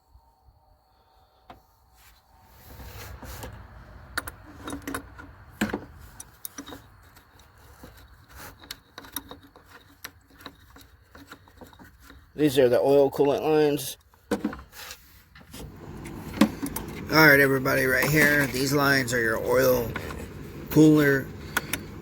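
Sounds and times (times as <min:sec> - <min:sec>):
handling noise: 0:15.3 - 0:22.0
hand tools clinking against metal: 0:15.6 - 0:22.0.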